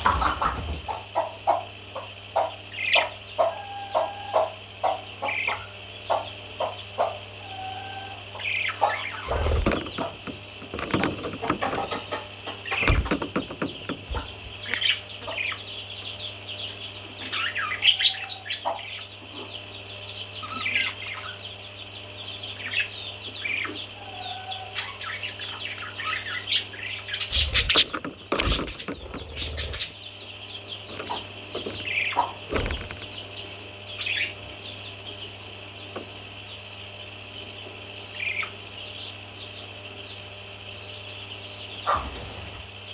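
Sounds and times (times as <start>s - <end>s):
steady low hum: 0.9s - 24.1s, 25.0s - 35.9s
baby parrots chirping: 7.4s - 10.0s, 17.2s - 19.1s, 20.4s - 21.5s, 22.6s - 30.0s
sudden knocks or thumps: 12.8s - 14.2s.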